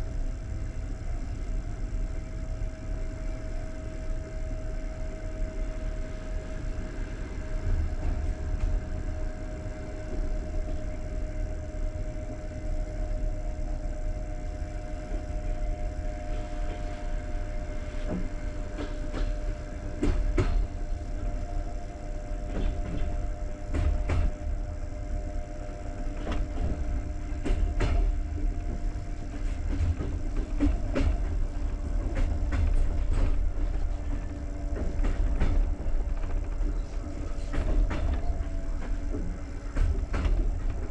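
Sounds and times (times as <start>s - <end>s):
faint steady whine: 0.0s - 40.9s
train coach rumbling: 0.0s - 40.9s
wheels clacking over rail joints: 26.0s - 40.9s.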